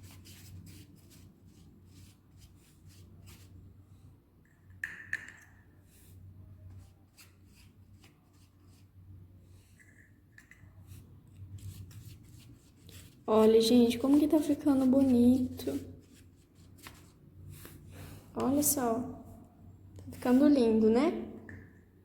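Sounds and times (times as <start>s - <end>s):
paintbrush scratching on cardboard: 10.9s - 17.2s.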